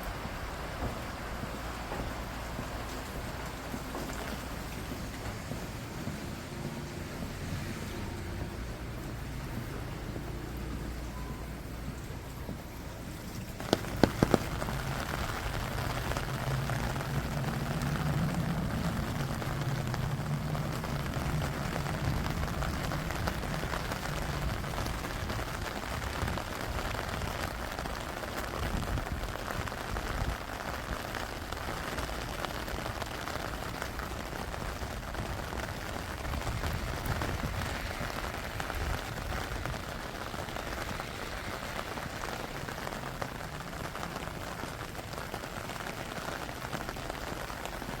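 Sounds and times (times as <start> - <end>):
steady rain falling: 0.0 - 48.0.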